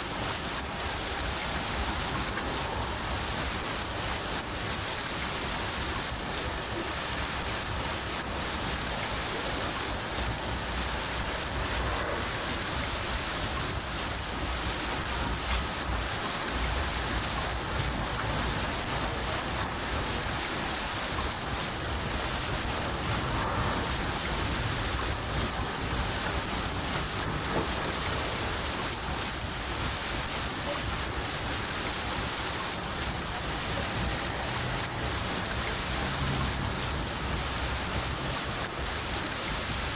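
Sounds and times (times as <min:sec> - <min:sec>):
crickets chirping: 0:00.0 - 0:39.9
rain hissing: 0:00.0 - 0:39.9.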